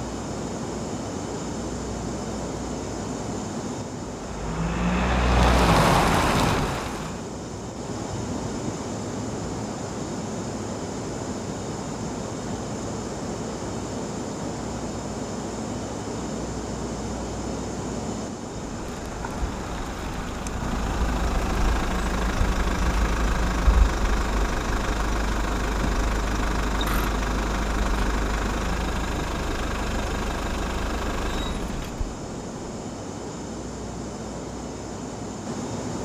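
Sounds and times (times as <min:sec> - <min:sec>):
vehicle engine rumbling: 0:03.8 - 0:07.6, 0:18.4 - 0:33.1.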